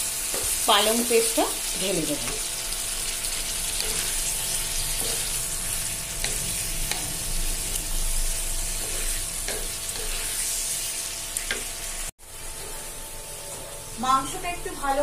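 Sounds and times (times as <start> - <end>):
chicken sizzling in a frying pan: 0.0 - 15.0
spatula scraping a pan: 3.3 - 8.0, 8.6 - 14.0.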